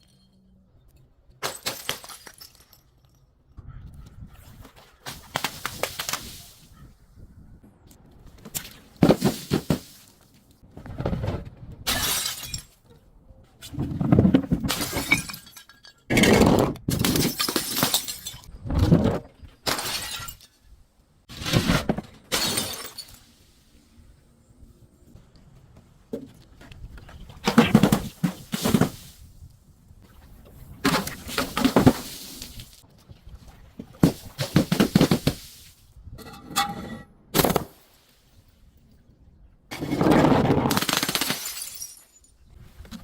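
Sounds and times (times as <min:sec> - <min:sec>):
glass breaking and crunching: 0:01.4 - 0:03.2, 0:11.9 - 0:12.8, 0:14.6 - 0:18.5, 0:19.6 - 0:20.7, 0:22.3 - 0:23.3, 0:40.7 - 0:42.5.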